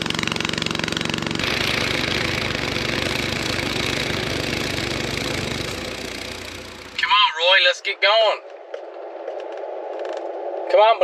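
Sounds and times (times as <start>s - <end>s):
engine idling: 0.0s - 7.3s.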